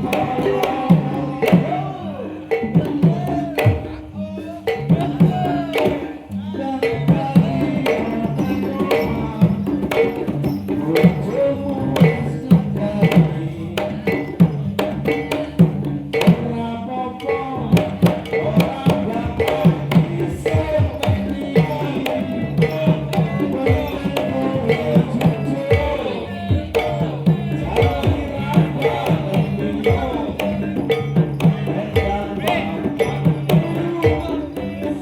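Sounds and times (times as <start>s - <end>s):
hand drum strokes: 0.0s - 35.0s
ringing struck pitched tones: 17.2s - 35.0s.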